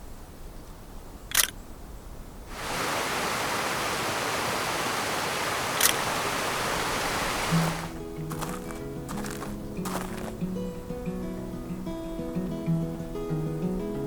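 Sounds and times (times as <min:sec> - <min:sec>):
steady rushing noise: 0:02.5 - 0:10.1.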